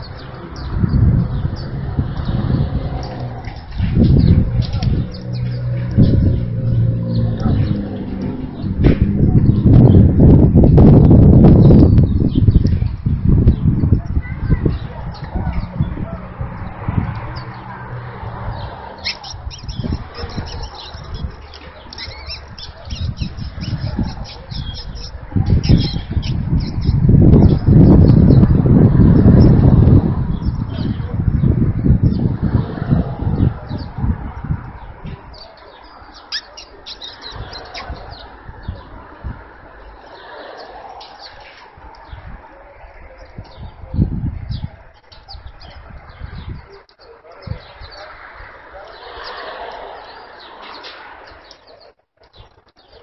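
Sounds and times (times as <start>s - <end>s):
dull low thumps: 0.0s - 18.7s
low rumbling noise: 0.0s - 36.1s
birds chirping and squawking: 0.0s - 53.0s.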